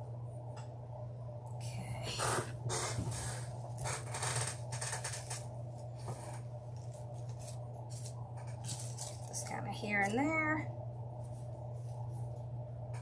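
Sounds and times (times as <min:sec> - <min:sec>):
mesh crinkling and rustling: 0:02.7 - 0:10.2.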